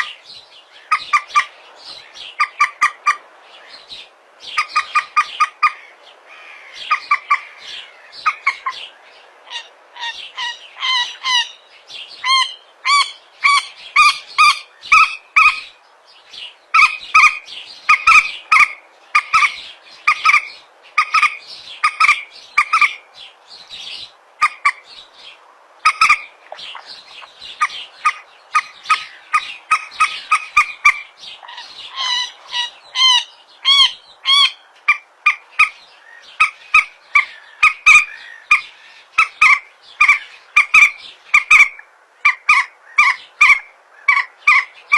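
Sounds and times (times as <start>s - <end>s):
moorhen clucking calls: 0.0s - 15.8s, 16.4s - 23.1s, 23.7s - 44.9s.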